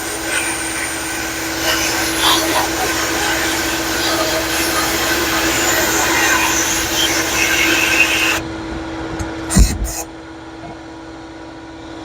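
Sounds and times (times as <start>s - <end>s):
media blaster hissing: 0.0s - 8.4s, 9.5s - 10.1s
steady hum: 0.0s - 8.6s.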